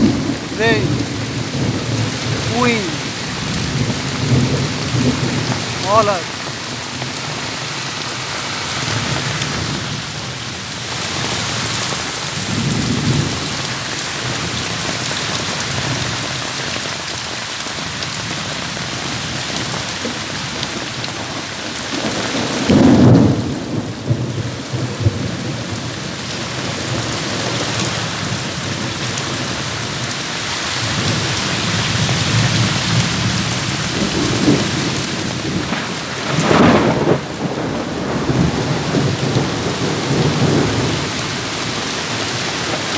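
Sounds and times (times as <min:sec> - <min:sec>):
thunder claps: 0:00.0 - 0:07.2, 0:21.2 - 0:25.7, 0:31.9 - 0:42.9
thunder rumbling: 0:00.0 - 0:07.7, 0:08.7 - 0:14.9, 0:19.0 - 0:27.7, 0:30.9 - 0:42.9
heavy rain: 0:00.0 - 0:42.9.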